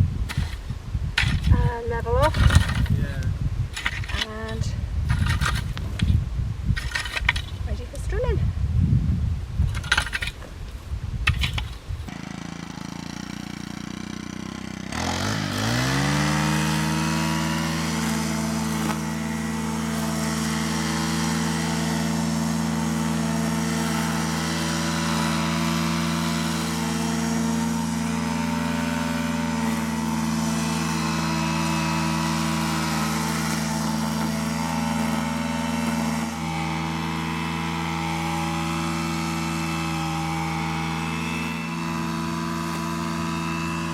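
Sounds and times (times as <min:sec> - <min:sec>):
strimmer engine starting and running: 0:00.0 - 0:08.4, 0:09.7 - 0:43.9.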